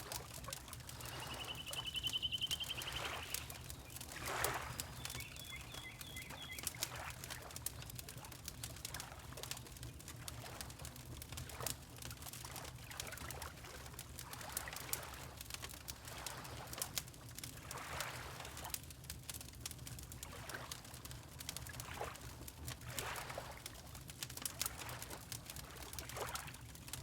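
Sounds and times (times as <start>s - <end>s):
water lapping: 0.0s - 11.8s, 12.4s - 16.9s, 17.6s - 18.8s, 20.2s - 27.0s
fireplace crackling and popping: 0.0s - 27.0s
faint bird chirps: 0.9s - 6.8s.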